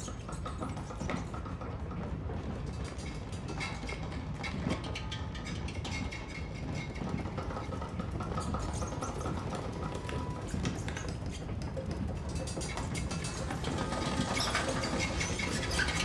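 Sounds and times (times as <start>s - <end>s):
rats scratching and squeaking: 0.0s - 1.5s, 2.9s - 16.0s
train carriage rumbling: 1.4s - 16.0s.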